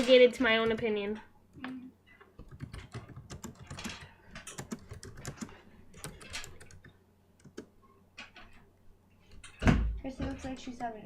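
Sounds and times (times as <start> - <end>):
rapid light clicks and taps: 0.0 - 8.6.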